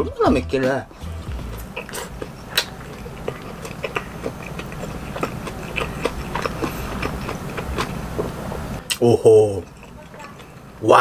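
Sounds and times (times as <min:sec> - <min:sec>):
person chewing with wet smacking: 0:00.9 - 0:10.7.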